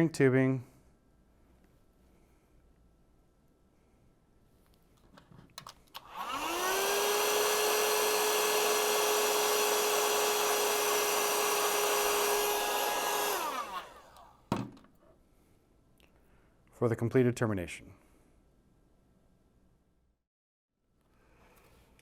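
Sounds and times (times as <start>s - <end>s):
heat gun fan whine: 6.0s - 14.4s.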